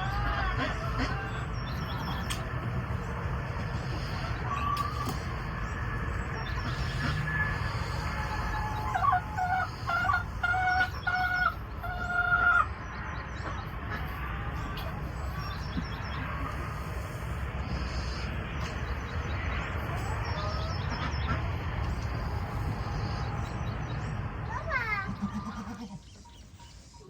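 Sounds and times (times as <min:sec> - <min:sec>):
chicken squawking: 0:00.0 - 0:02.2, 0:06.6 - 0:12.7, 0:24.5 - 0:26.2.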